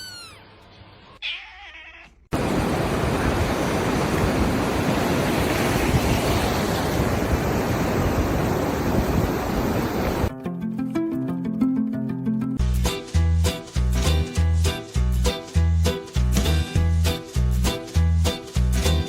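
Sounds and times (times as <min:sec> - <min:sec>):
cat meowing: 0:00.0 - 0:02.3.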